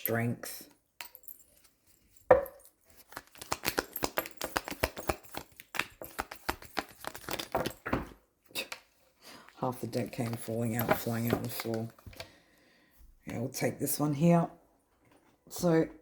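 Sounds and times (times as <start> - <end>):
cards falling on floor: 2.3 - 8.2
cards shuffling: 2.9 - 8.9.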